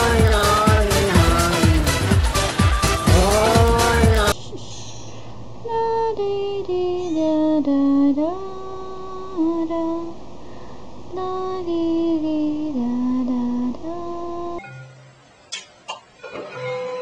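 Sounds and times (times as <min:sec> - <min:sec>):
person singing in a high voice: 0:00.0 - 0:04.4, 0:05.6 - 0:10.2, 0:11.1 - 0:14.6.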